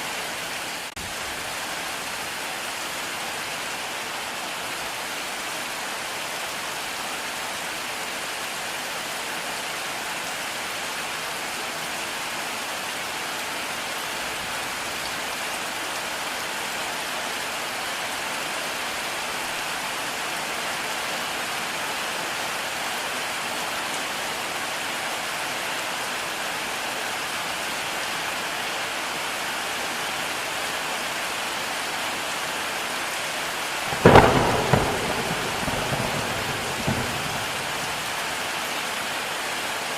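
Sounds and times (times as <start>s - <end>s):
heavy rain falling: 0.0s - 39.9s
thunderclap rumbling: 33.9s - 38.4s.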